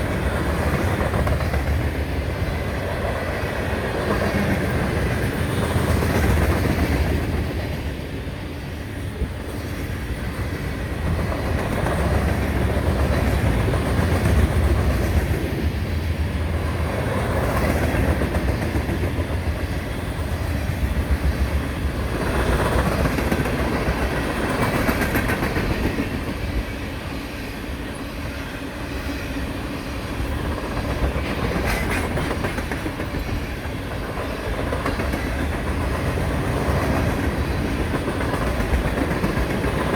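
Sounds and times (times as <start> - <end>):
freight train rumbling past: 0.0 - 39.9
wheels clacking over rail joints: 9.2 - 26.8, 30.2 - 39.9.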